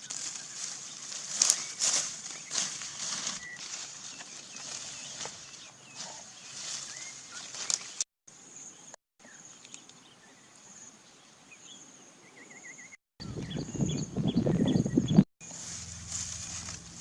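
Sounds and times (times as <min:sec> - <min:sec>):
loud rustling and scuffling: 0:00.0 - 0:08.1, 0:15.4 - 0:17.0.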